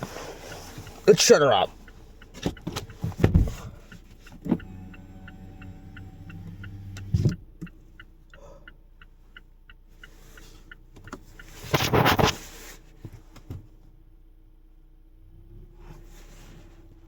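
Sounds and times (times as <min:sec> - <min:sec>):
car engine idling with ticking: 0:00.0 - 0:17.0
engine shutoff thump: 0:02.4 - 0:04.8.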